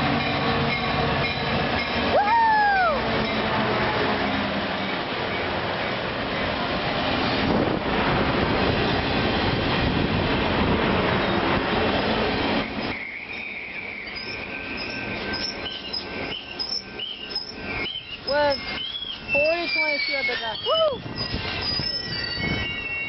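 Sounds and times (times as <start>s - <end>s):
high squeal from rails: 0.0s - 7.8s, 10.9s - 23.0s
train wheels rumbling on rails: 0.0s - 23.0s
bird chirps: 13.0s - 20.7s.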